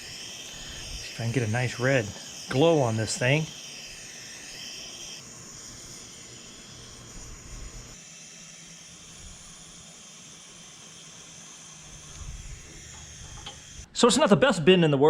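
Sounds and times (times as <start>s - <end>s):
gas torch flame hissing: 0.0s - 13.9s.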